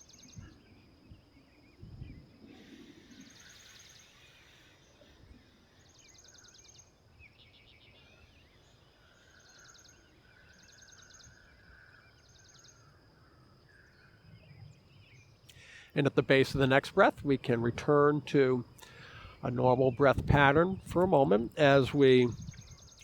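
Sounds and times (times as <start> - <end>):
birds trilling: 0.0 - 23.0
faint background hiss: 0.0 - 23.0.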